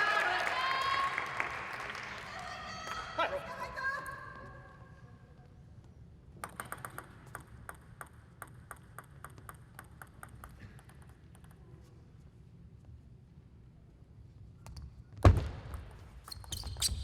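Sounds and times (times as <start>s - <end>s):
table tennis ball clicking: 6.4s - 11.6s.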